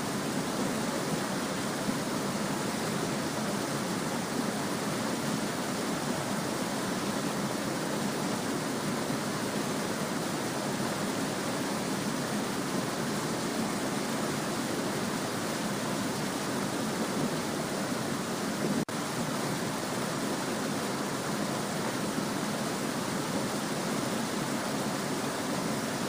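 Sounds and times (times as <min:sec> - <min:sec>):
small stream babbling: 0:00.0 - 0:26.0.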